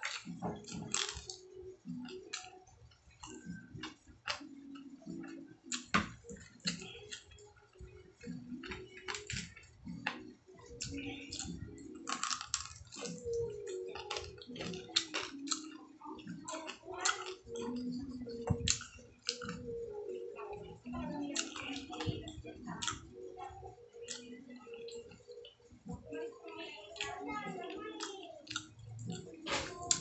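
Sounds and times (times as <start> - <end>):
crunchy chewing: 0.0 - 25.6
wet mouth clicks: 10.8 - 18.0, 28.5 - 29.2.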